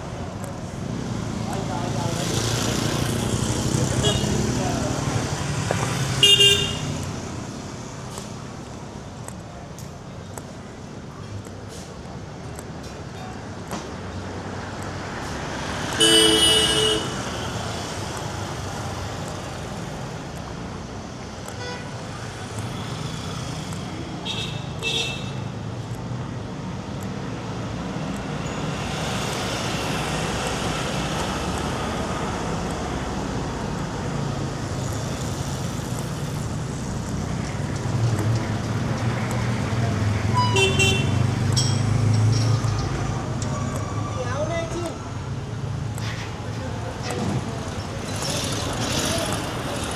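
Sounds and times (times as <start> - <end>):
passing vehicle engines: 0.0 - 49.9
vehicle horns: 3.9 - 4.6, 6.0 - 7.1, 15.8 - 17.7, 21.5 - 22.1, 24.2 - 25.5, 40.2 - 41.5.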